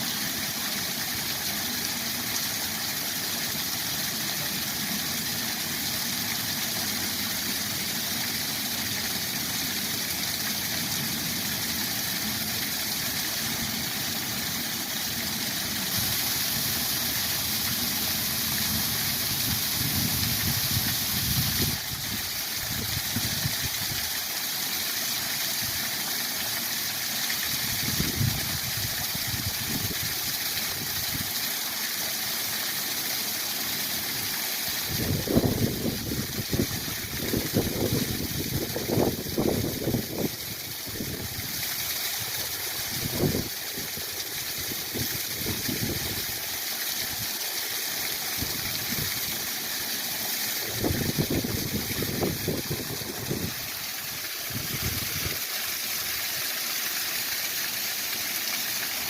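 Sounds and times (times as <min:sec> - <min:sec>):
waterfall rushing: 0:34.9 - 0:59.0.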